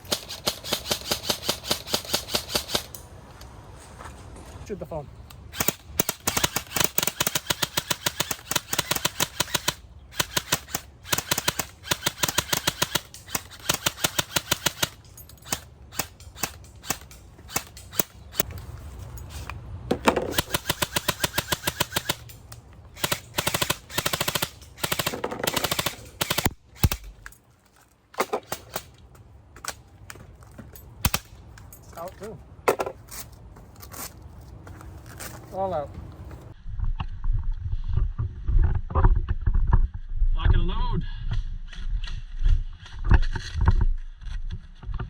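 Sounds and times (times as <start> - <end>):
airsoft guns firing bursts: 0.0 - 2.9, 5.6 - 18.4, 20.2 - 22.3, 23.0 - 27.2.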